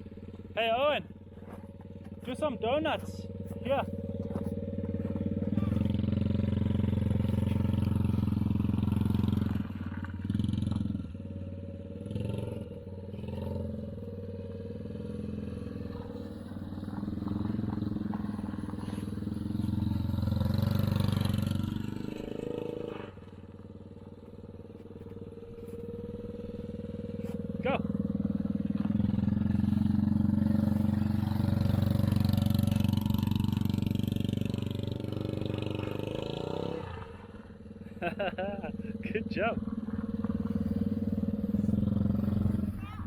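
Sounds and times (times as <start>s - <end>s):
small car engine revving: 0.0s - 43.0s.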